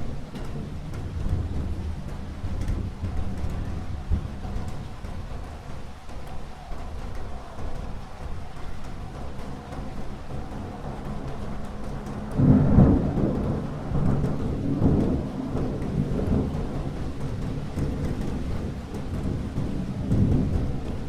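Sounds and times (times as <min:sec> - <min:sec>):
steady rain: 0:00.0 - 0:21.0
thunder rumbling: 0:00.0 - 0:21.0.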